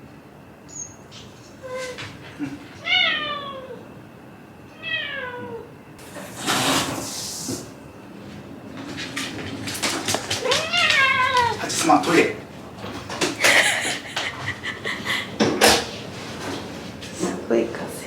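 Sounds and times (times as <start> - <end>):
loud breathy hiss: 6.0 - 7.8.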